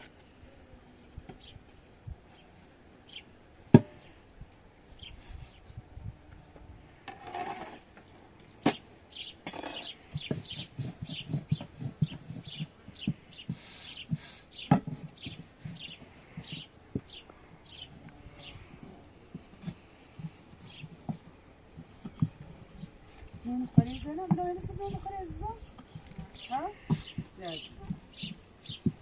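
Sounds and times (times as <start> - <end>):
small bird chirping: 8.0 - 19.7, 22.1 - 29.0
soft low thumps: 15.1 - 29.0.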